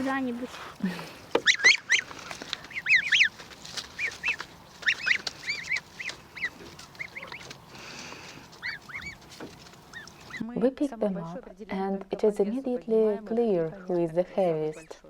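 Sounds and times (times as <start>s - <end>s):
goslings peeping: 0.0s - 10.4s.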